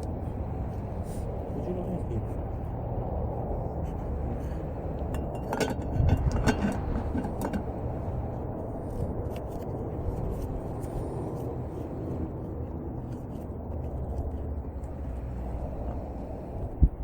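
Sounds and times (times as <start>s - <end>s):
steady low rumble: 0.0s - 17.0s
cookware clinking and knocking: 5.1s - 7.8s.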